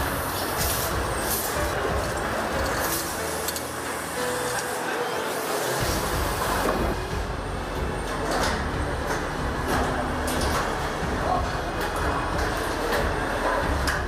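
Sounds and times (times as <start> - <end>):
metal parts clicking and clunking: 0.0 - 4.8, 8.0 - 14.0
factory machinery rumble: 0.0 - 14.0.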